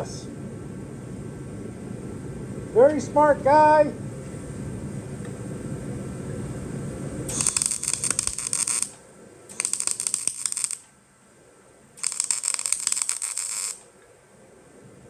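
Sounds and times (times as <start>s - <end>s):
low steady hum: 0.0s - 15.0s
welding arc crackling: 7.0s - 11.0s, 12.0s - 14.0s.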